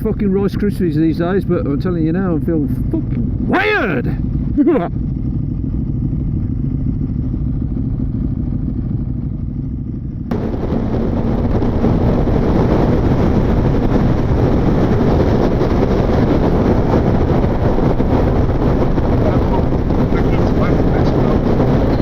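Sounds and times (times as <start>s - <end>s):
motorcycle engine rumble: 0.0s - 22.0s
wind and road noise: 0.0s - 22.0s.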